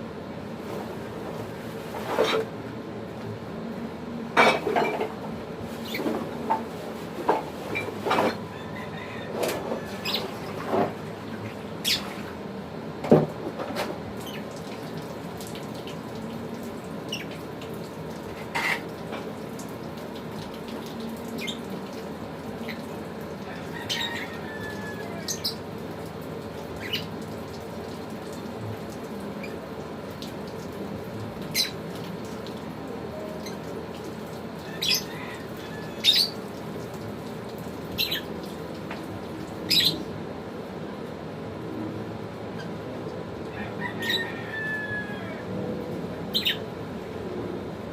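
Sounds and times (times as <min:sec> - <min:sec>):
lovebirds chirping and squeaking: 0:10.0 - 0:10.4, 0:11.8 - 0:12.1, 0:31.6 - 0:31.8, 0:34.8 - 0:35.1, 0:36.0 - 0:36.4, 0:39.7 - 0:40.0, 0:46.3 - 0:46.6.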